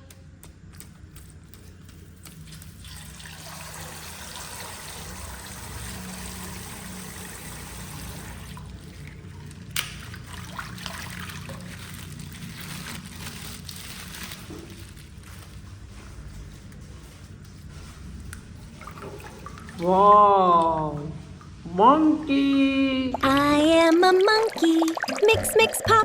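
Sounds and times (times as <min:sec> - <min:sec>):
water pouring from plastic bag: 0:02.4 - 0:17.2
small crackles: 0:11.2 - 0:18.6.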